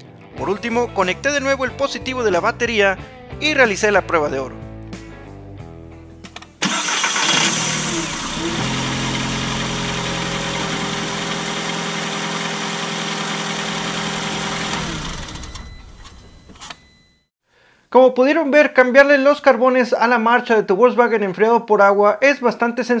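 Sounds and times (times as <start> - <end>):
car engine revving and idling: 6.6 - 16.0
starter motor cranking: 6.6 - 16.8.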